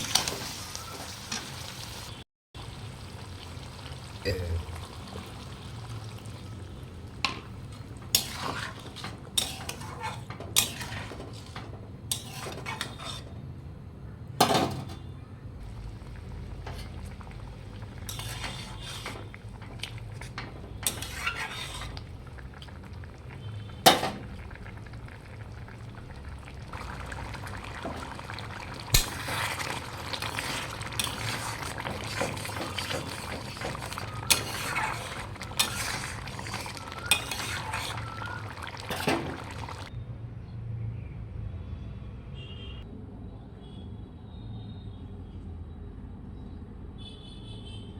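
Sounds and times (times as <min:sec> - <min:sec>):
metal spoon stirring in pan: 0:00.0 - 0:02.0, 0:07.2 - 0:13.4, 0:16.0 - 0:22.8, 0:26.7 - 0:39.9
cooking sizzle: 0:00.0 - 0:13.3, 0:15.6 - 0:39.9.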